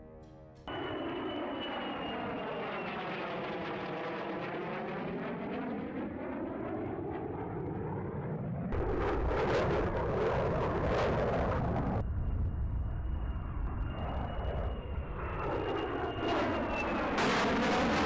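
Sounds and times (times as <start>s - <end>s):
jet aircraft flying past: 0.7s - 18.0s
loud jet engine noise: 8.7s - 18.0s.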